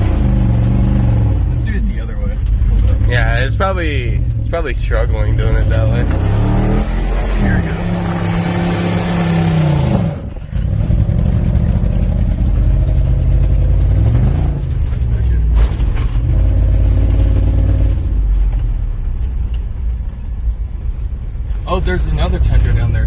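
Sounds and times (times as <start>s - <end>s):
loud engine exhaust revving: 0.0s - 1.7s, 2.6s - 14.7s.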